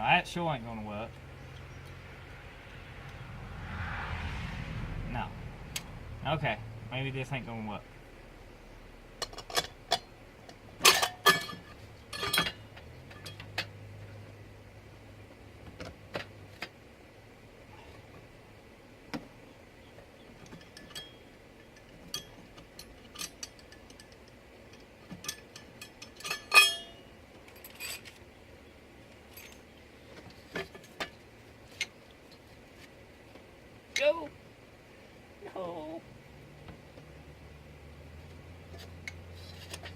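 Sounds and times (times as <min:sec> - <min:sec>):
metal parts clinking: 0:10.8 - 0:13.6, 0:20.5 - 0:28.2
ringing metal clank: 0:20.6 - 0:22.4, 0:25.3 - 0:27.1.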